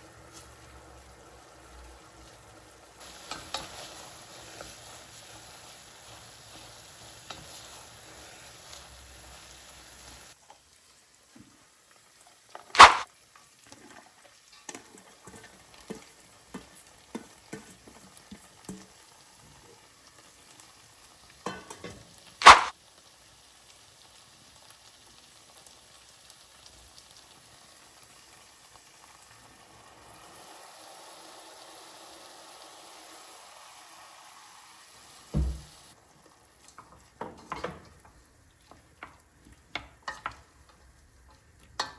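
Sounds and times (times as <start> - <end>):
faint sizzle in a pan: 0.0 - 41.9
loud sharp knocks: 35.4 - 35.7
low thump: 35.4 - 35.8.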